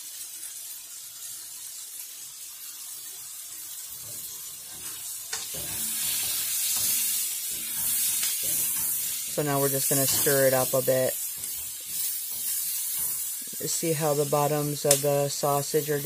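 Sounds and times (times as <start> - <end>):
food sizzling in a skillet: 0.0 - 16.0
wooden spoon scraping a pan: 3.9 - 16.0.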